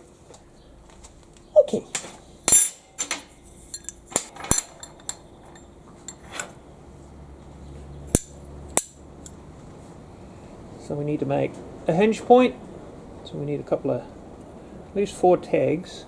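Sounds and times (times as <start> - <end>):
metal tools clinking on a workbench: 1.8 - 6.6, 8.1 - 9.4.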